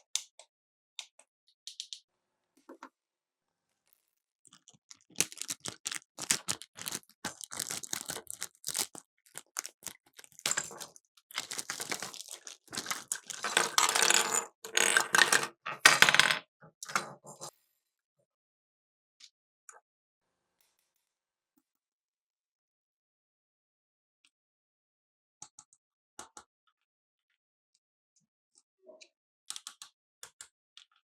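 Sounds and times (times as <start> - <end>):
plastic toy clicks and rattles: 4.5 - 17.5
packaging crinkling: 4.6 - 13.8.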